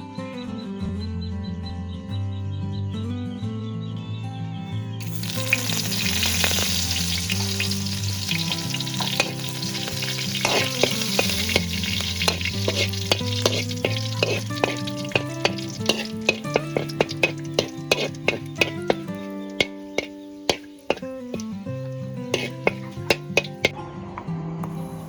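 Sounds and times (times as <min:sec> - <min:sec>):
insects sizzling in a pan: 0:05.0 - 0:23.7
utensil clicking against pan: 0:05.0 - 0:23.7.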